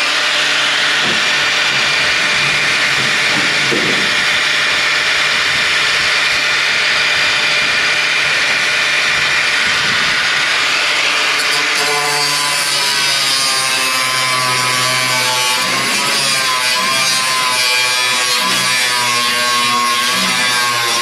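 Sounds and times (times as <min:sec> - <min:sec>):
power saw grinding steel: 0:00.0 - 0:21.0.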